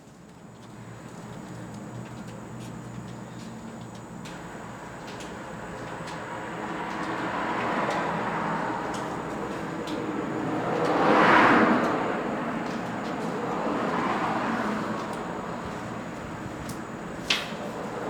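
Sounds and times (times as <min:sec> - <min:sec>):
vehicles passing: 0:05.3 - 0:18.0.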